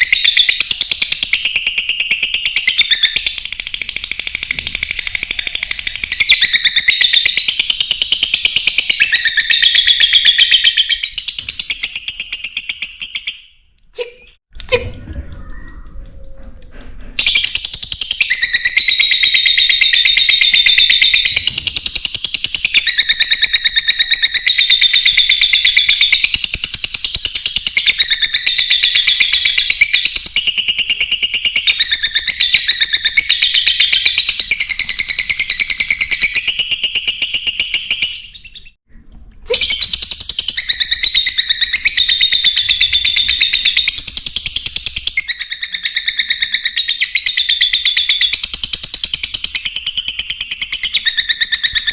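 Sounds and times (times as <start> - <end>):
lovebirds chirping: 0.0 - 26.4.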